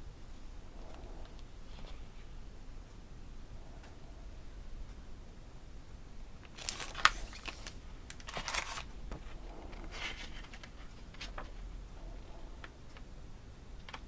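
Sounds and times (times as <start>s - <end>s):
packaging rustling: 6.4s - 11.7s.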